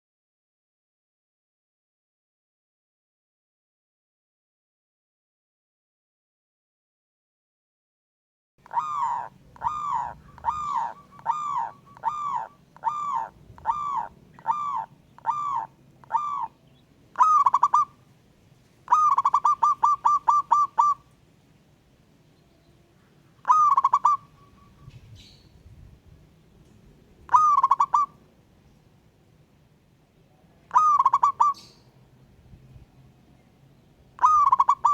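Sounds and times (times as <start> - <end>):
doves cooing: 8.6 - 18.1, 18.8 - 21.2, 23.1 - 25.3, 27.3 - 28.2, 30.7 - 31.8, 34.2 - 34.9.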